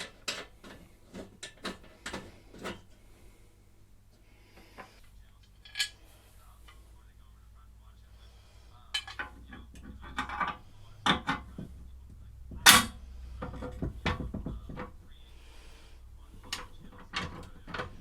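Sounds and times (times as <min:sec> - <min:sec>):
tools clicking and knocking: 0:00.0 - 0:02.9, 0:08.9 - 0:11.8, 0:12.5 - 0:15.0, 0:16.4 - 0:18.0.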